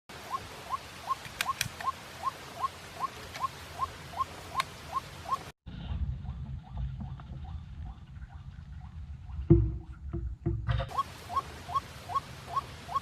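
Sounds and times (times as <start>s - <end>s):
bird calling rising notes: 0.2s - 5.5s, 10.9s - 13.0s
sharp clicks: 1.1s - 2.0s
low rumble: 5.7s - 10.8s.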